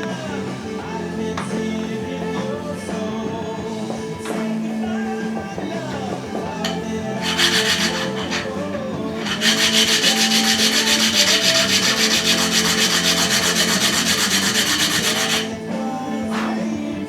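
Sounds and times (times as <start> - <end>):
sanding back and forth: 4.2 - 16.9.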